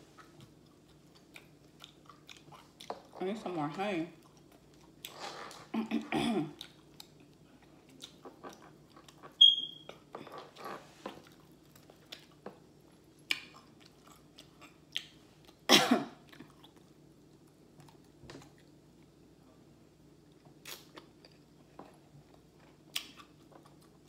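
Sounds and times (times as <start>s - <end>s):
wet chewing clicks and lip smacks: 0.2s - 3.1s, 13.2s - 15.6s
short high squeak: 9.4s - 9.9s.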